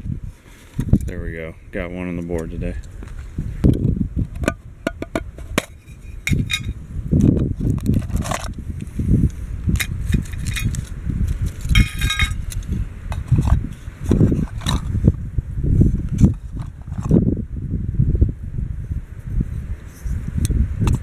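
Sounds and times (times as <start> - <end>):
wind buffeting microphone: 0.0 - 21.0
high ringing rattle: 11.7 - 12.5
sharp clicks and clinks: 11.7 - 13.6.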